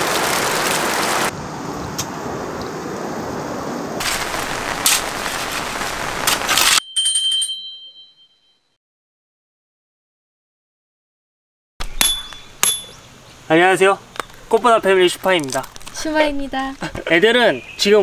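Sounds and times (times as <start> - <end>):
heavy rain splashing on tarp: 0.0 - 1.4, 3.9 - 6.8
bell-like chime: 6.8 - 8.8.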